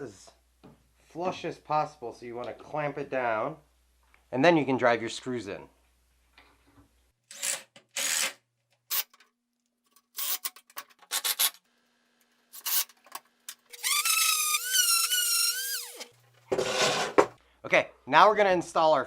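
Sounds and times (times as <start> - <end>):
cordless drill driving a screw: 13.7 - 16.1
scraping and rubbing: 13.7 - 17.4.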